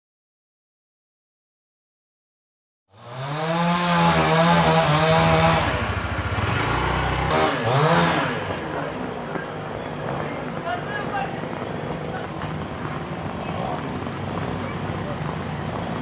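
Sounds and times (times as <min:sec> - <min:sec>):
chainsaw running at high revs: 0:02.9 - 0:09.2.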